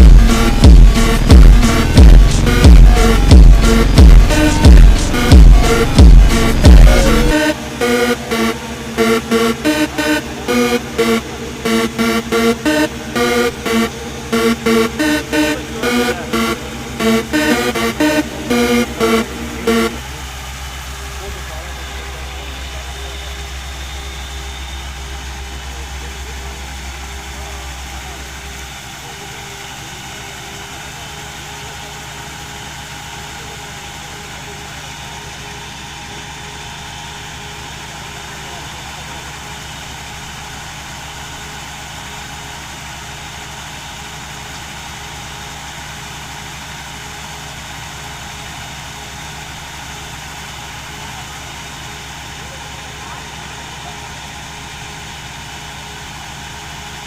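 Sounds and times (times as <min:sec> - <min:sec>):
harvesting machine engine humming: 0:00.0 - 0:57.0.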